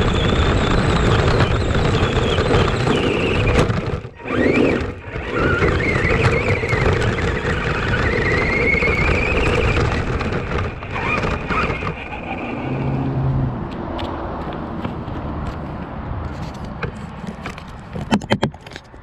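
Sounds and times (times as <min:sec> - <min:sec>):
electric motor whining: 0:00.0 - 0:13.5
tyres on the ground: 0:00.0 - 0:19.0.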